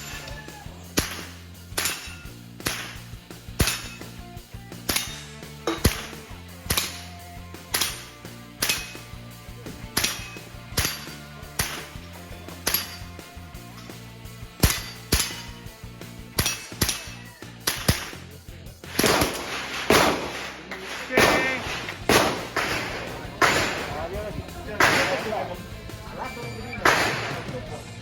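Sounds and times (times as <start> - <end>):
rifle shots: 18.9 - 25.7, 26.8 - 27.8.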